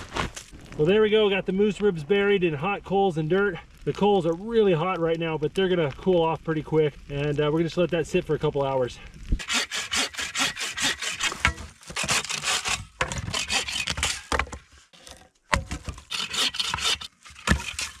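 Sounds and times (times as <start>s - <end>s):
hand saw cutting wood: 9.4s - 14.5s, 15.9s - 18.0s.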